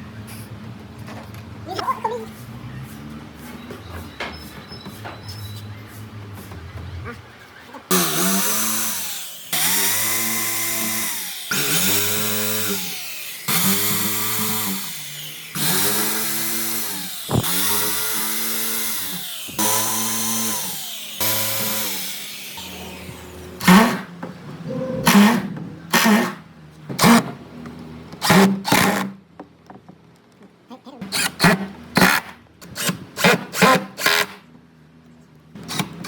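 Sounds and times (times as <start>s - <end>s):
electric power tool cutting wood: 7.9s - 24.1s.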